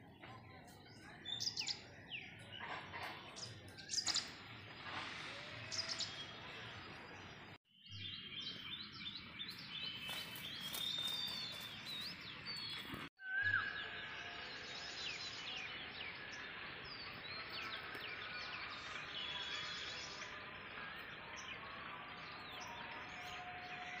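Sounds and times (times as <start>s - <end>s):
small birds chirping: 0.0s - 13.6s.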